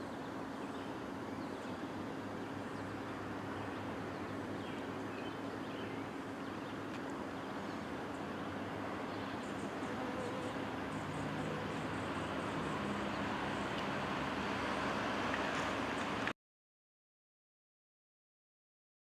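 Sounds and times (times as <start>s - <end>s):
diesel locomotive idling: 0.0s - 14.8s.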